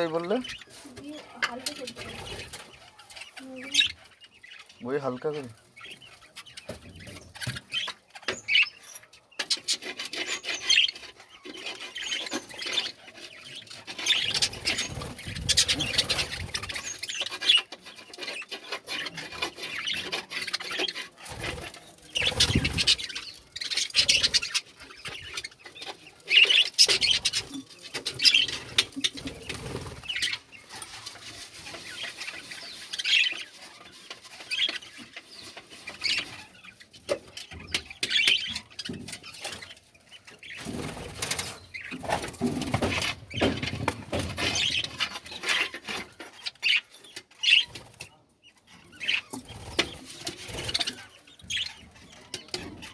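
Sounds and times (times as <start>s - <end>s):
scratching and scraping: 0.0s - 52.9s
knocks and rustles: 40.4s - 46.5s.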